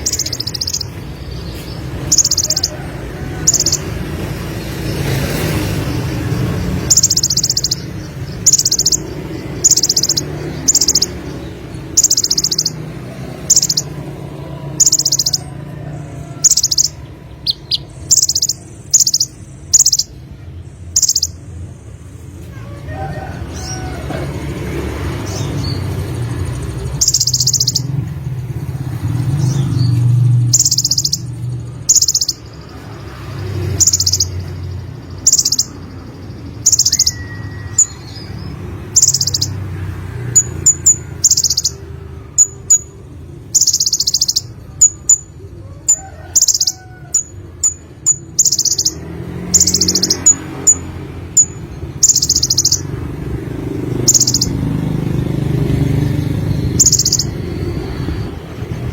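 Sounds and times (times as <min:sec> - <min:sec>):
bird chips: 0:00.0 - 0:02.8, 0:05.0 - 0:14.0, 0:14.8 - 0:15.5, 0:16.5 - 0:20.2, 0:20.9 - 0:21.4, 0:25.3 - 0:28.1, 0:29.4 - 0:39.6, 0:40.2 - 0:41.8, 0:45.9 - 0:53.0, 0:53.9 - 0:54.7, 0:56.5 - 0:58.3
bird singing buzzy trilled notes: 0:00.0 - 0:02.8, 0:03.4 - 0:15.5, 0:16.4 - 0:21.7, 0:25.3 - 0:45.4, 0:46.4 - 0:58.9.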